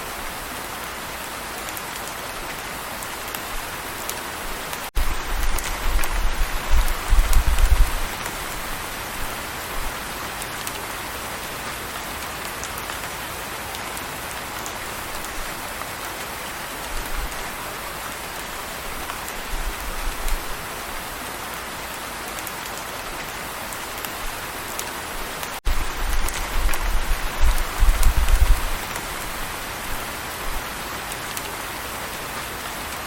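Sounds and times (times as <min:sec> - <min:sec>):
steady rain falling: 0:00.0 - 0:33.0
faint raindrop ticks: 0:01.6 - 0:08.6, 0:10.4 - 0:17.5, 0:21.9 - 0:29.4, 0:30.4 - 0:33.0.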